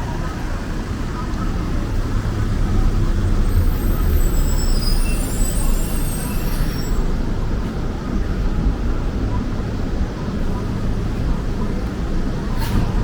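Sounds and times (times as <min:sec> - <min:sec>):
traffic rumble: 0:00.0 - 0:13.0
high-pitched squeal and hiss: 0:03.4 - 0:07.3.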